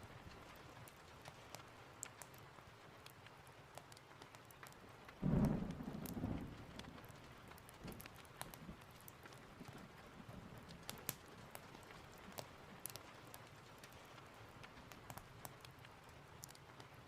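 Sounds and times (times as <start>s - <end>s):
light ticks: 0.0s - 17.0s
steady rain: 0.0s - 17.0s
low rumble of thunder: 5.2s - 10.9s.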